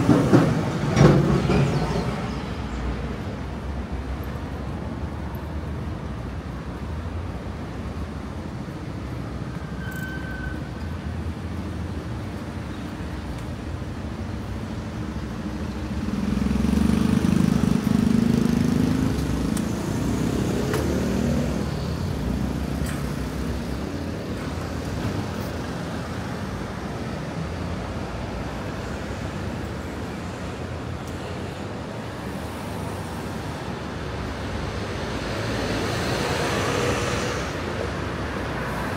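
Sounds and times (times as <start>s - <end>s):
hum of passing cars: 10.6s - 38.9s.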